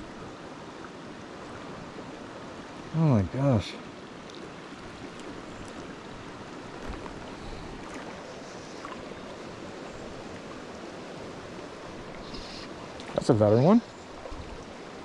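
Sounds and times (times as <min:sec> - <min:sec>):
water running over rocks: 0:00.0 - 0:15.0
faint ticks and splashes: 0:03.6 - 0:15.0.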